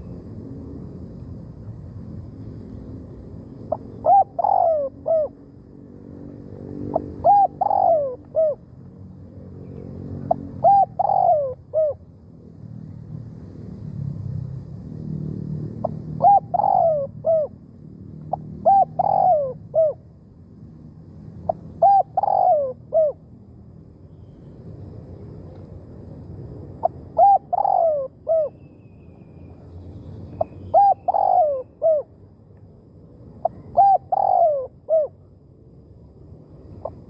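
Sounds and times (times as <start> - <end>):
dove cooing: 3.6 - 5.4, 6.9 - 8.6, 10.2 - 12.0, 15.8 - 17.6, 18.3 - 20.0, 21.5 - 23.2, 26.8 - 28.6, 30.6 - 32.1, 33.4 - 35.2.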